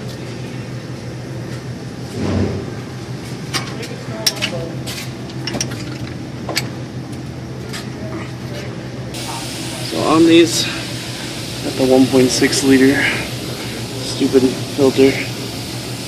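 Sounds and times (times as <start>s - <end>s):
steady low hum: 0.0s - 16.0s
metal hand tools clinking: 5.3s - 6.2s.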